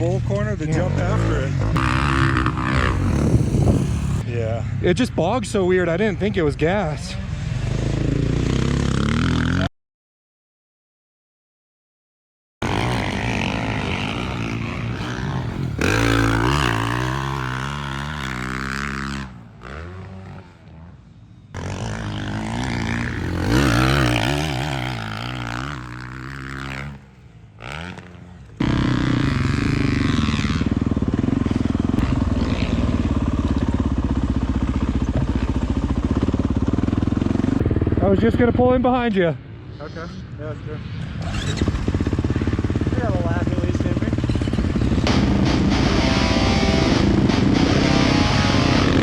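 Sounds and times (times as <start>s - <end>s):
motocross bike engine revving: 0.7s - 4.3s, 7.3s - 9.7s, 12.6s - 38.7s, 39.4s - 49.0s.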